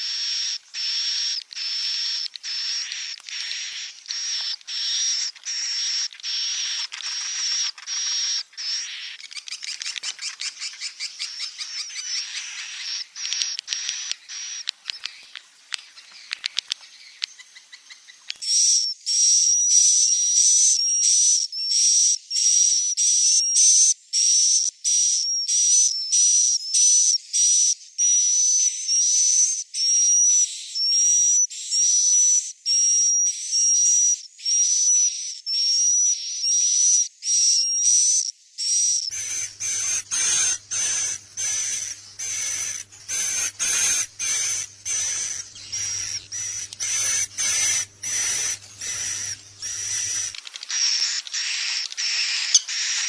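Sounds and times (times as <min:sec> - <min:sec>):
high buzzy bird chirps: 0:00.0 - 0:18.7, 0:39.1 - 0:53.0
low hum: 0:39.1 - 0:50.5.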